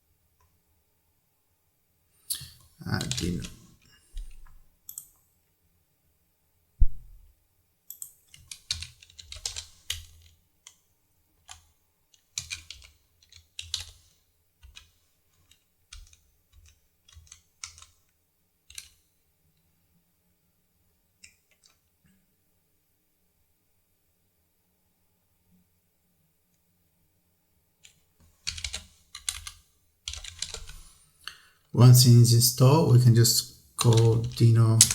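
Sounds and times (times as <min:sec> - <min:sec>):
typing on keyboard: 0:03.0 - 0:03.6, 0:07.9 - 0:10.8, 0:11.4 - 0:18.0, 0:18.7 - 0:19.0, 0:27.8 - 0:30.8, 0:33.8 - 0:34.9
low thump: 0:06.8 - 0:07.2.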